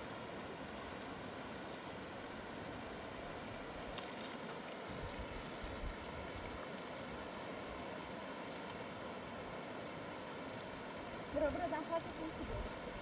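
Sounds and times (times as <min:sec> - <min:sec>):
mountain river rushing: 0:00.0 - 0:13.0.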